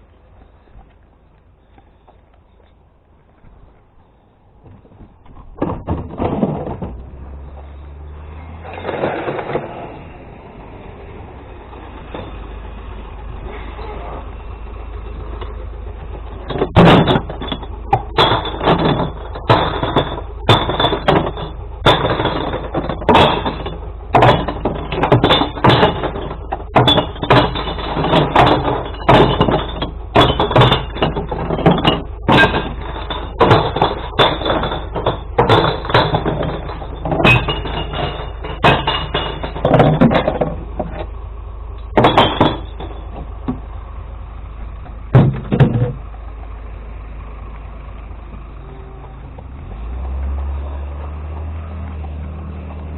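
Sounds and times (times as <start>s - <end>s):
truck engine running: 0.0s - 52.9s
glass bottles clinking and smashing: 16.4s - 41.1s, 41.9s - 43.6s.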